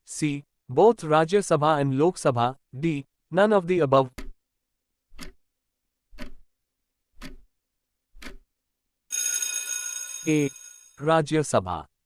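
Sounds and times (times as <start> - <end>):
clock ticks: 5.1 - 5.4, 6.2 - 6.4, 7.2 - 7.5, 8.2 - 8.5
bright ringing chime: 9.1 - 11.0.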